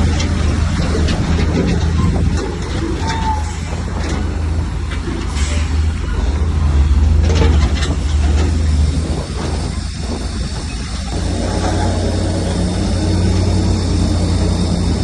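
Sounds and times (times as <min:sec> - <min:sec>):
heavy diesel engine rumble: 0:00.0 - 0:15.0
brief squeal: 0:03.0 - 0:03.7.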